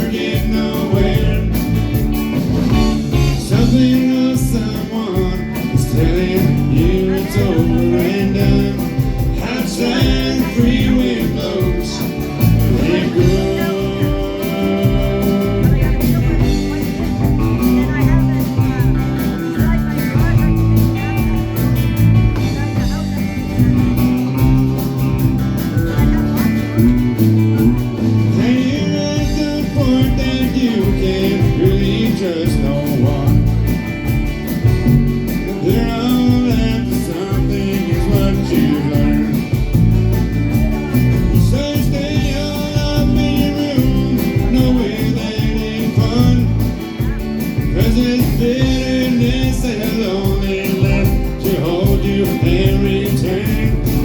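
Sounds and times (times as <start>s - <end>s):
person singing: 0.0s - 34.2s, 34.8s - 54.0s
guitar: 0.0s - 54.0s
steady drum beat: 0.0s - 54.0s.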